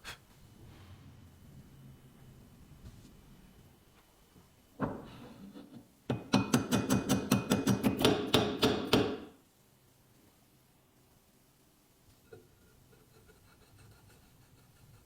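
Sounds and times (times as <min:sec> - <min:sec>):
hammer striking metal: 0:06.1 - 0:09.3.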